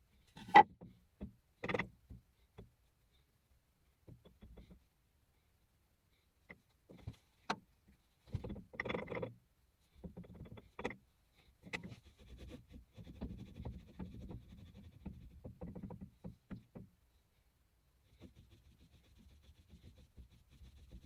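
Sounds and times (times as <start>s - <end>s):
scraping or rubbing: 0.3s - 0.6s.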